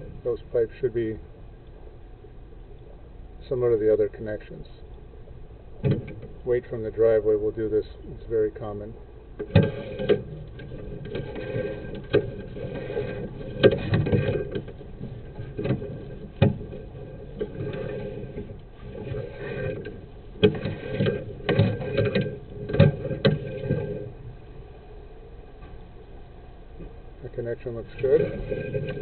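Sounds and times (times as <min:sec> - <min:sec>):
steady low rumble: 0:00.0 - 0:29.0
cable knocks and rattles: 0:09.4 - 0:24.1.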